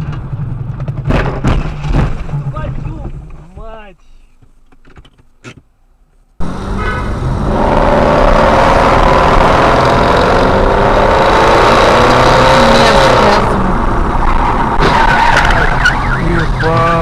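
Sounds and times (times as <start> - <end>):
loud road noise: 6.4 - 17.0.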